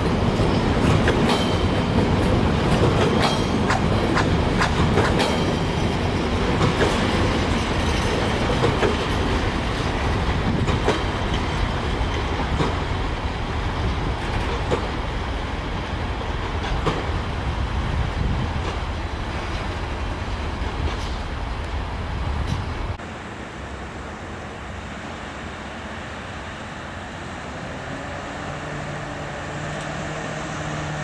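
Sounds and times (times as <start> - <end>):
wheels clicking over rail joints: 0.0 - 13.1, 13.7 - 15.2, 15.9 - 17.2, 18.2 - 21.7
freight train rumbling: 0.0 - 31.0.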